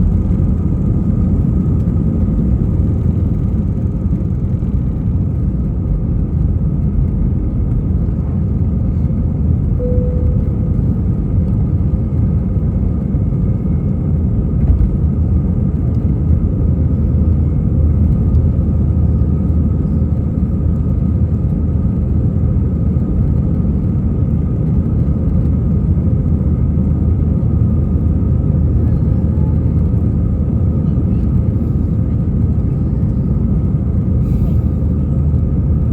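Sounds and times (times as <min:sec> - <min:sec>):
jet engines rumbling in cabin: 0:00.0 - 0:35.9
faint high hum: 0:09.6 - 0:12.5.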